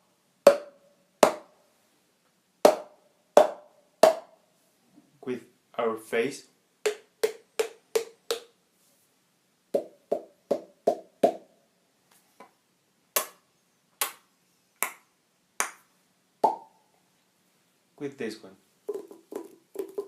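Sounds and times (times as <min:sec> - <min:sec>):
hollow mouth pops: 0:18.9 - 0:20.0.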